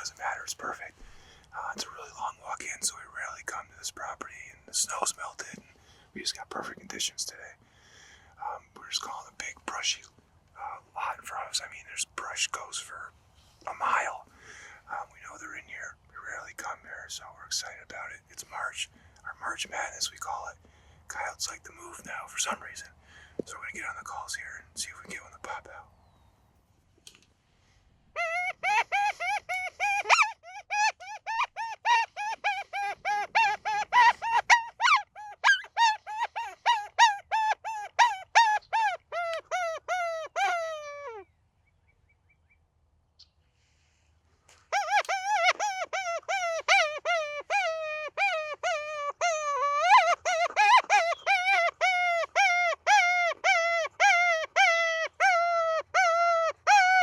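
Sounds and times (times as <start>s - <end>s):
predator call high cries: 28.2s - 41.2s, 44.7s - 57.0s.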